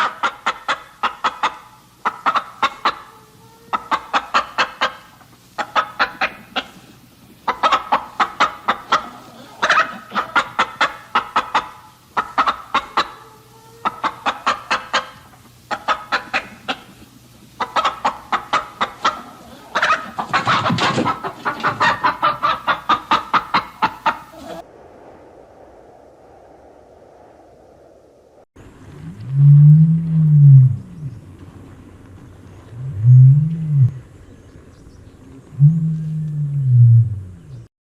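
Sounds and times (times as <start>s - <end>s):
chickens clucking: 0.0s - 24.6s
harsh chicken call: 0.0s - 24.6s.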